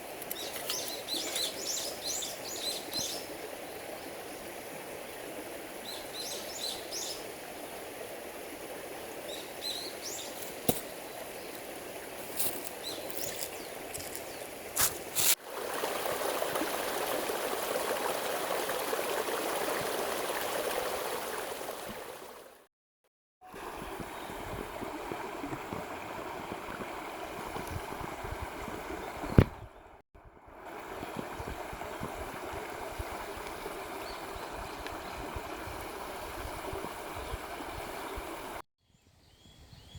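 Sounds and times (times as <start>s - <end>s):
flowing stream: 0.0s - 22.7s, 23.4s - 38.6s
small birds chirping: 0.3s - 3.3s, 12.4s - 14.6s.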